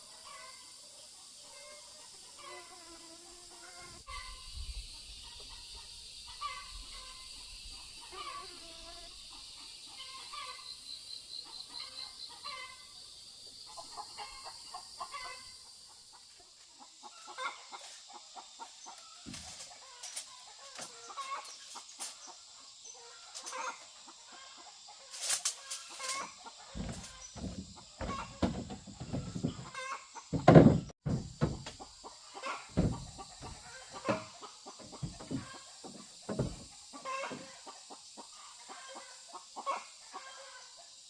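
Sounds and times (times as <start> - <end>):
chickens clucking: 5.0 - 8.4, 9.3 - 10.7, 11.4 - 13.0, 13.6 - 41.0
dull knocks and thumps: 26.8 - 31.9, 32.7 - 36.7.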